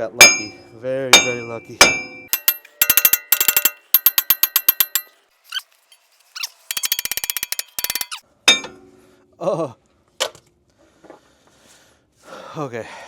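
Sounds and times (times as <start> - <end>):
ratchet wrench clicking: 2.3 - 5.1, 6.7 - 8.2.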